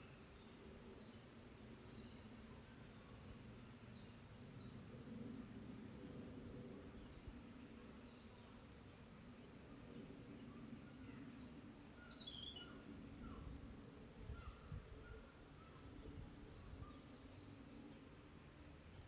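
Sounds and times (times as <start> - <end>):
insects droning: 0.0 - 19.0
bird chirps: 12.0 - 12.7.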